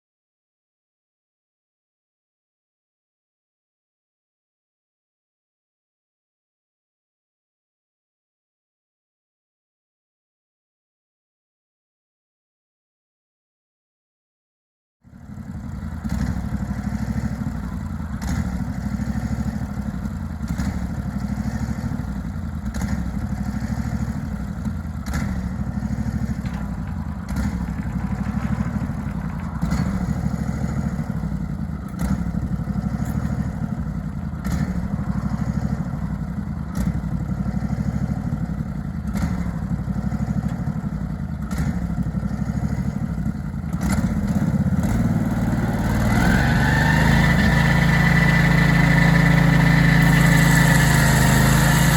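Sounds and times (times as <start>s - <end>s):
sawmill engine running: 15.1s - 51.9s
light knocks and clatter: 25.0s - 33.4s.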